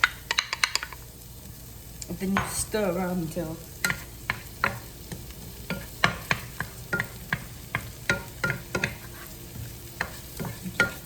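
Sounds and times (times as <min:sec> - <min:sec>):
shallots sizzling in hot oil: 0:00.0 - 0:11.0
utensil scraping a pan: 0:05.7 - 0:11.0.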